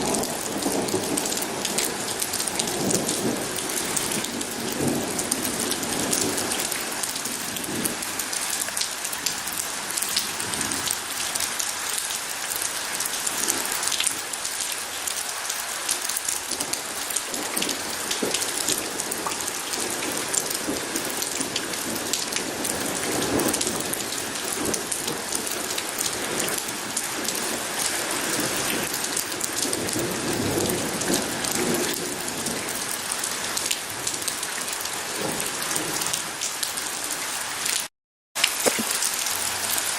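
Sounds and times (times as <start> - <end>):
distant thunder rumbling: 0.0 - 8.2
heavy rain pattering: 0.0 - 39.9.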